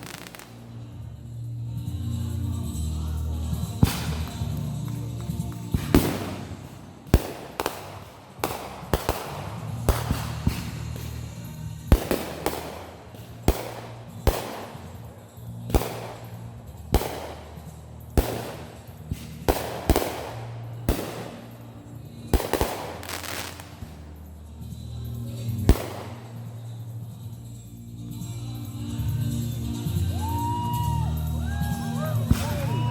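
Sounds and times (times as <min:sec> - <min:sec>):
fireworks banging: 0:00.0 - 0:00.9, 0:03.7 - 0:24.3, 0:25.6 - 0:27.3, 0:32.2 - 0:32.9
music with steady bass: 0:00.0 - 0:32.9.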